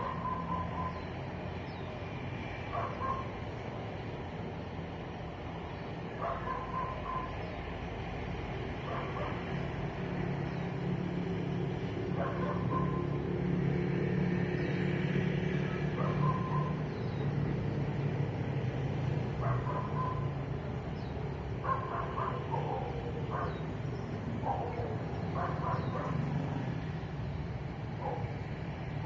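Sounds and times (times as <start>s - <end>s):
dog barking: 0.0s - 1.0s, 2.7s - 3.3s, 6.2s - 7.4s, 8.8s - 9.5s, 12.2s - 13.2s, 15.7s - 16.8s, 19.4s - 20.4s, 21.6s - 23.6s, 24.4s - 26.2s, 28.0s - 28.3s
vehicle engine droning past: 7.8s - 21.1s, 22.3s - 29.0s
birds chirping faintly: 14.2s - 27.1s.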